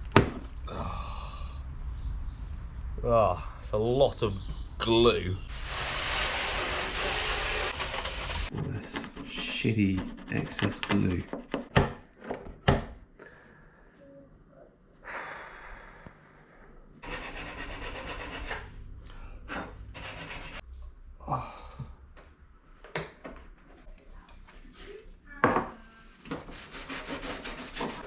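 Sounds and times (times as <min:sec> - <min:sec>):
hand rasp strokes on plastic: 0:05.5 - 0:11.7.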